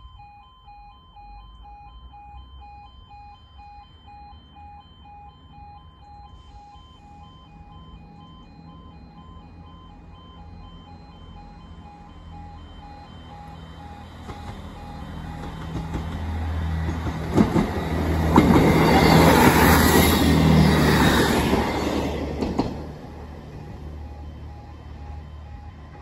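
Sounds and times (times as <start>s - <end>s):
pulsing two-tone crossing alarm: 0.0s - 26.0s
diesel train passing: 6.2s - 26.0s
wheel clacks over rail joints: 15.4s - 18.9s.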